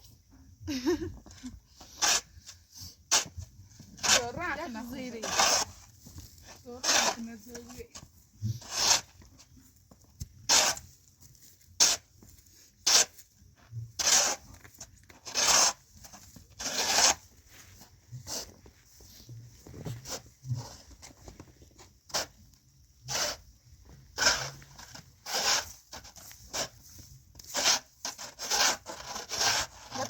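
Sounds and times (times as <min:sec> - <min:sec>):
rasping scrapes: 0:01.8 - 0:09.3, 0:10.4 - 0:13.2, 0:14.0 - 0:21.0, 0:22.1 - 0:22.4, 0:23.1 - 0:23.4, 0:24.2 - 0:30.0.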